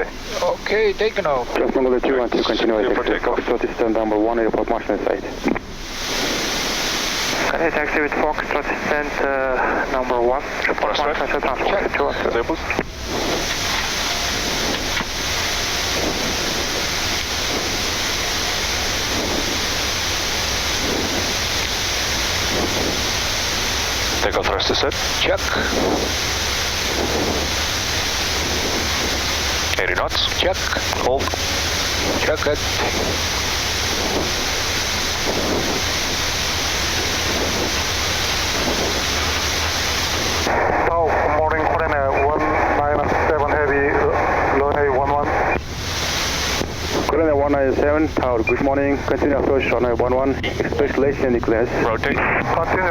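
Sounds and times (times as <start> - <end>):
jet engines rushing: 0.0 - 52.9.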